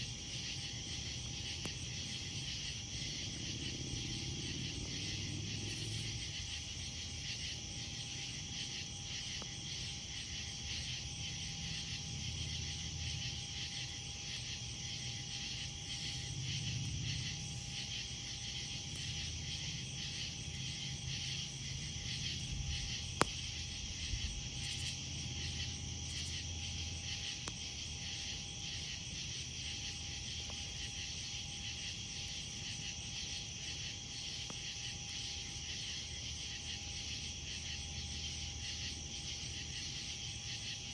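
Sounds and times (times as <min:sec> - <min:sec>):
fire crackle: 0:00.0 - 0:10.1, 0:17.1 - 0:26.3
campfire burning: 0:00.0 - 0:13.7, 0:14.7 - 0:33.2
night insects chirping: 0:00.0 - 0:40.9.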